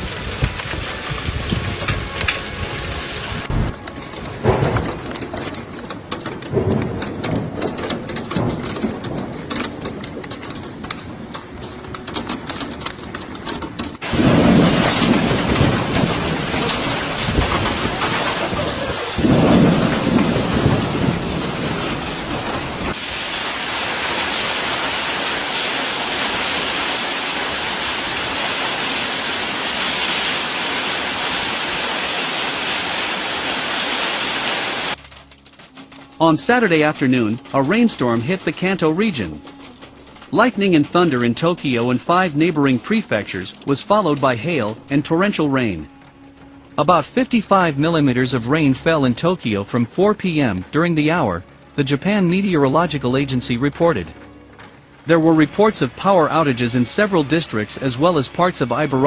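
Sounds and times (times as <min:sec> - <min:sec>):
thunder rumbles: 0:00.0 - 0:33.9
rain pattering on a surface: 0:00.0 - 0:59.0
downpour hiss: 0:14.0 - 0:35.0, 0:55.0 - 0:59.0.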